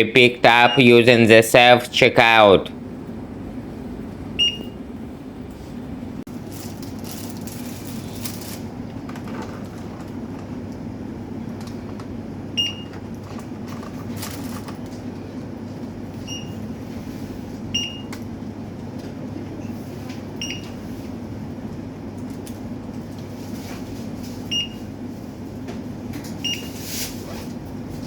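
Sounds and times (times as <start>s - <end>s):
store hum: 0.0s - 28.0s
barcode scanner beeping: 4.4s - 4.8s.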